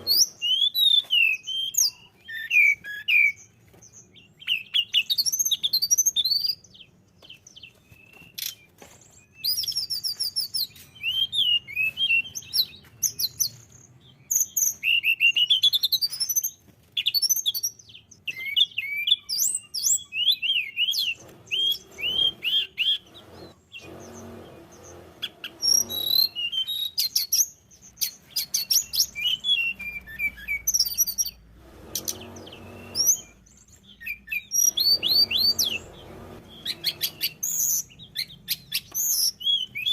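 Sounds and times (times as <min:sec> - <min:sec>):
bird warbling: 0:20.9 - 0:27.4, 0:28.0 - 0:33.4, 0:34.0 - 0:38.9.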